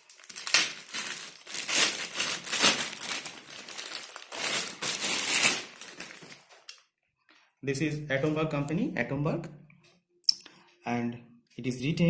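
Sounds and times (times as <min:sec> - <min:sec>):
packaging crinkling and rustling: 0:00.0 - 0:06.9.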